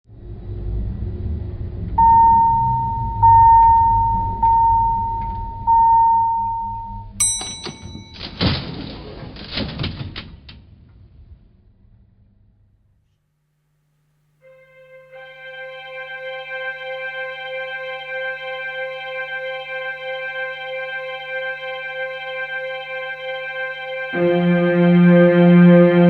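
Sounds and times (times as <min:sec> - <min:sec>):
low rumble: 0:00.1 - 0:07.2, 0:10.5 - 0:13.0
long electronic beeps: 0:02.0 - 0:07.2
bright electronic ping: 0:02.0 - 0:08.2
noisy crash: 0:08.2 - 0:12.9.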